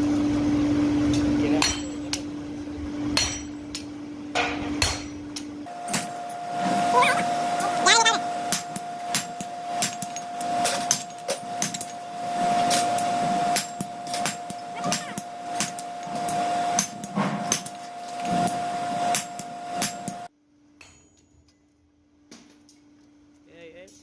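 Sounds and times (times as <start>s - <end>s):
machine hum: 0.0s - 20.3s
hammer ringing on hot metal: 1.6s - 2.3s, 3.1s - 21.3s.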